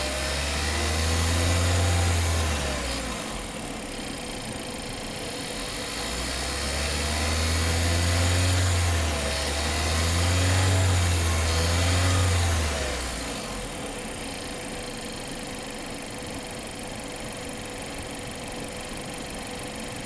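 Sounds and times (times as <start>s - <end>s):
car engine running: 0.0s - 20.0s
engine rattle: 0.0s - 20.0s.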